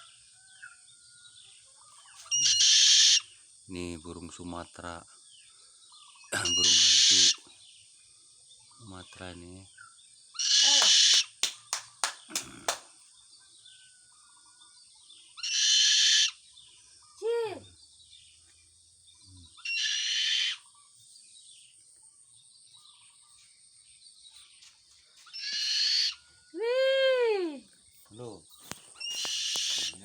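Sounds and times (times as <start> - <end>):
owl screeching: 2.2 - 3.4, 6.4 - 7.5, 10.4 - 11.4, 15.4 - 16.4, 19.6 - 20.8, 25.3 - 26.2, 28.9 - 30.0.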